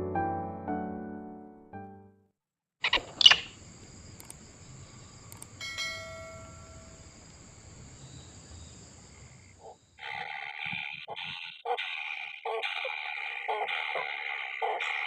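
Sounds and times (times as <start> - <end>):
faint high whine: 3.3 - 8.8
ringing bell-like tone: 5.6 - 7.3.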